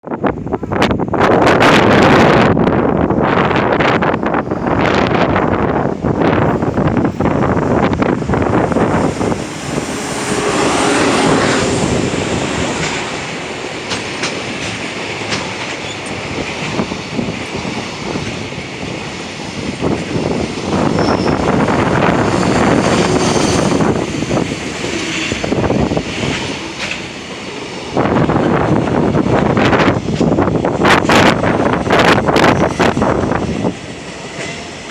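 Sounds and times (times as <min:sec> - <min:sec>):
freight train rolling past: 0:00.1 - 0:34.9
wheels clacking over rail joints: 0:06.4 - 0:34.9.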